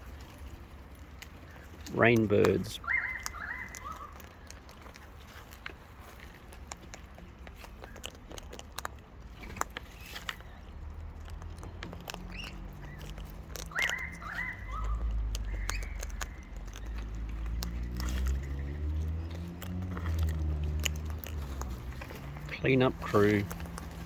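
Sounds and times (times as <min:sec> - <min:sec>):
birds cracking seeds: 0:00.0 - 0:24.0
sharp beak clicks and taps: 0:01.2 - 0:24.0
bird call with falling notes: 0:02.8 - 0:04.1.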